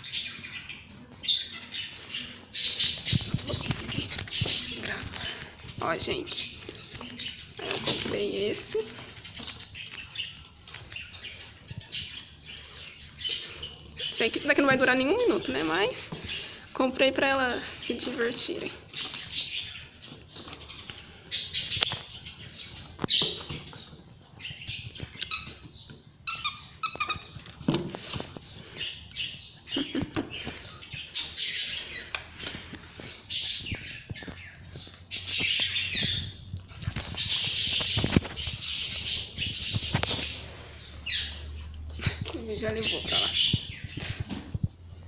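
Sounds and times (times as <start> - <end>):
rustling and crinkling: 0.0 - 45.0
squeaky dog toy squeaks: 25.2 - 25.6, 26.2 - 27.4.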